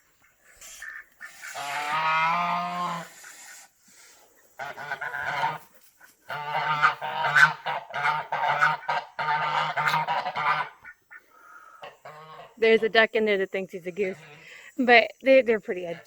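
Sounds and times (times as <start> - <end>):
geese honking: 0.5 - 3.7, 4.6 - 12.8.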